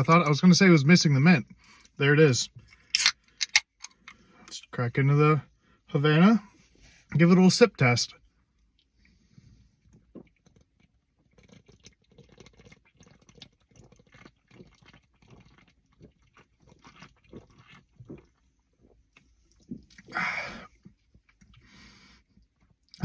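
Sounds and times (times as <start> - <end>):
can clicking: 3.0 - 3.7
person sipping and swallowing: 8.8 - 23.0
wet mouth sounds: 9.8 - 21.7.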